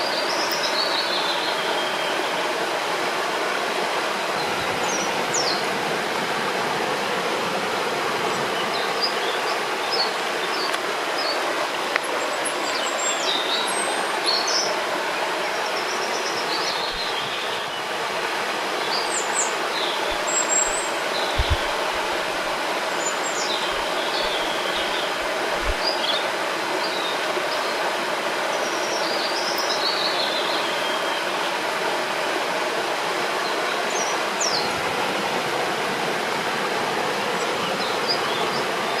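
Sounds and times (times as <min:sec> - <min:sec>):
flowing river water: 0:00.0 - 0:39.0
small birds chirping: 0:15.5 - 0:17.9, 0:18.8 - 0:26.3
soft low thumps: 0:20.1 - 0:22.6.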